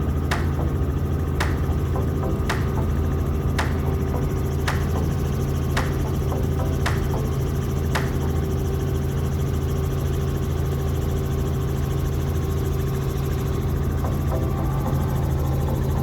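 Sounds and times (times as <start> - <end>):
helicopter engine and rotor: 0.0 - 16.0
sharp click: 0.3 - 0.7, 1.4 - 2.9, 3.6 - 3.9, 4.7 - 5.1, 6.8 - 7.2, 8.0 - 8.3.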